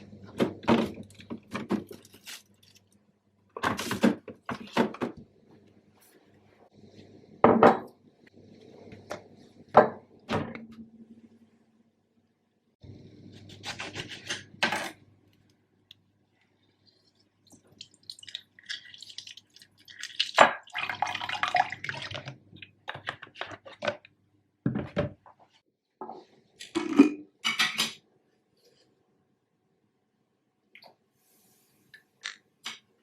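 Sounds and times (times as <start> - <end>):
dishes and cutlery clinking: 27.4 - 28.0.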